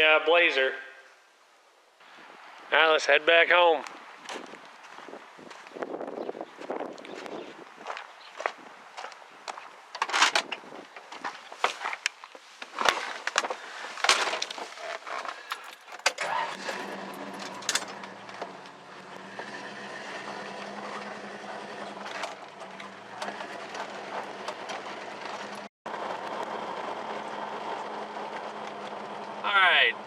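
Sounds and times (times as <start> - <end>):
keys jangling: 15.5 - 17.9
sharp clicks and clatters: 15.5 - 18.4
vehicle engine running: 15.5 - 29.4.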